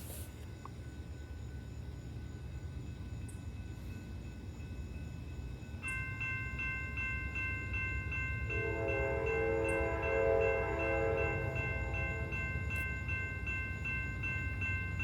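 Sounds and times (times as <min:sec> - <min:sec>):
crossing bell ringing: 0:01.0 - 0:15.0
lower-pitched crossing bell: 0:03.8 - 0:15.0.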